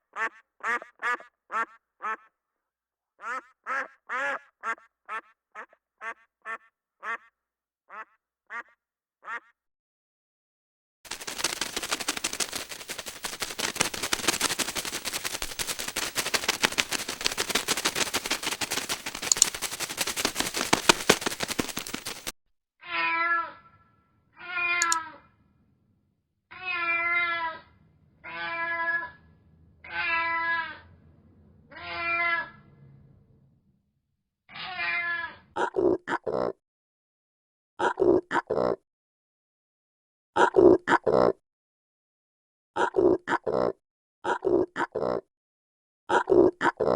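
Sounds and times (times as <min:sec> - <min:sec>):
rapid rattling crackle: 0:11.1 - 0:22.3.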